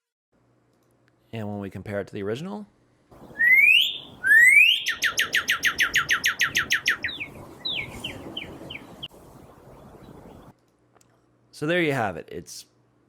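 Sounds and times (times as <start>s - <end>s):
field recording hiss: 0.4s - 13.0s
songbird singing: 3.2s - 10.5s.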